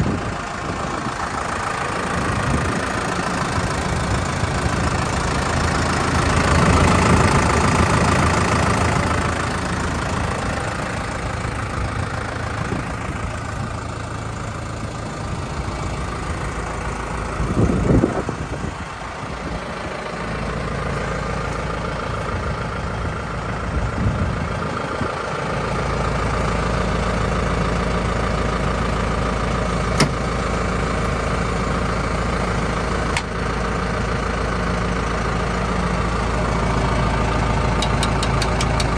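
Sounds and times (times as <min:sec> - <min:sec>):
diesel tractor engine idling: 0:00.0 - 0:38.9
sharp clicks: 0:37.8 - 0:38.9.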